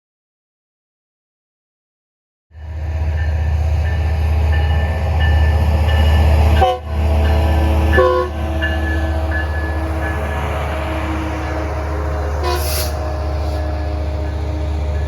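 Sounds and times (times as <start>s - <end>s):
diesel train engine rumble: 2.6s - 15.0s
multi-tone air horn blasts: 6.6s - 6.9s, 8.0s - 8.4s, 12.4s - 13.0s.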